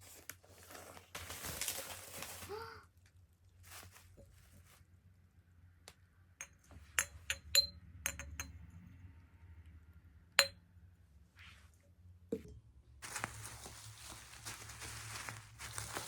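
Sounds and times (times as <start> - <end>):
glassware clinking: 6.4 - 8.6.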